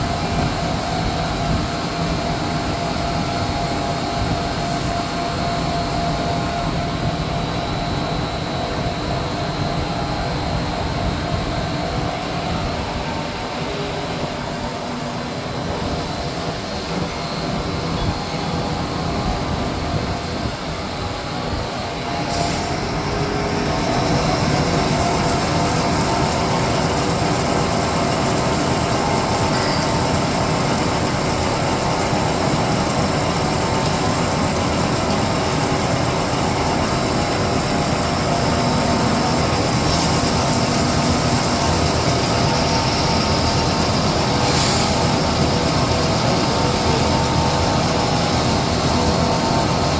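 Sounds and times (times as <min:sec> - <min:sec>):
lathe running: 0:21.8 - 0:49.9
machine hiss: 0:21.9 - 0:49.9.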